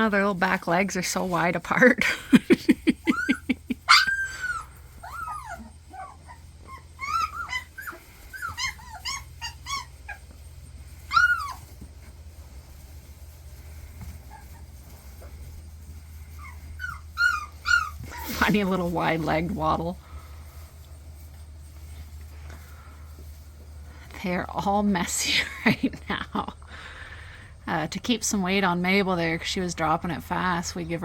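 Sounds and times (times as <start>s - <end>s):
puppies whimpering and yipping: 1.3s - 23.9s.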